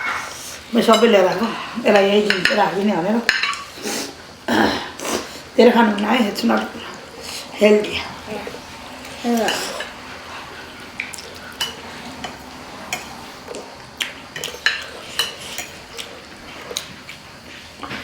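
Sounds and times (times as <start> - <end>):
utensils clicking against dishes: 9.0 - 10.0, 11.0 - 16.9.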